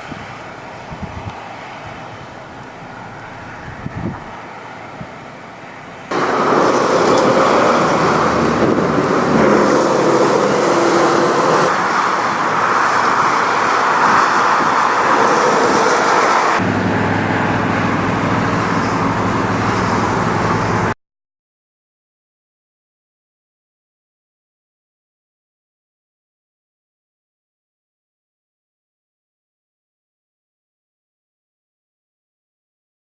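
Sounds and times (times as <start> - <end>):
wind noise: 0.0 - 20.9
low engine hum: 0.0 - 21.0
vehicle noise: 0.0 - 21.0.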